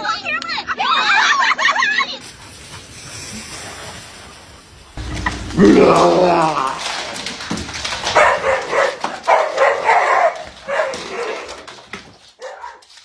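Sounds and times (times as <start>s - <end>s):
dog barking: 8.1s - 11.7s, 12.4s - 12.9s.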